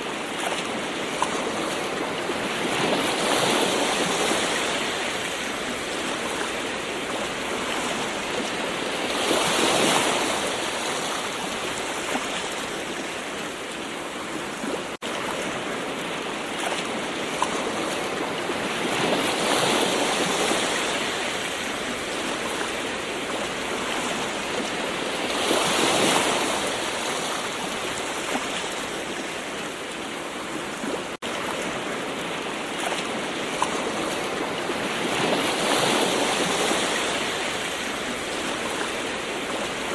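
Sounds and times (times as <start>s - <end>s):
ocean waves washing ashore: 0.0s - 39.9s.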